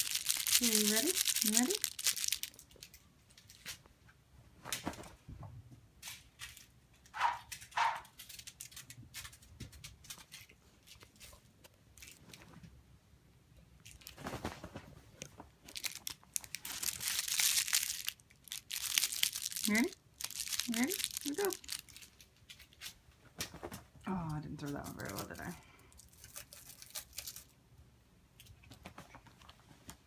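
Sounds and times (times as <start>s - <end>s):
cat toy crinkling: 0.0s - 3.9s, 7.5s - 12.7s, 13.8s - 27.6s.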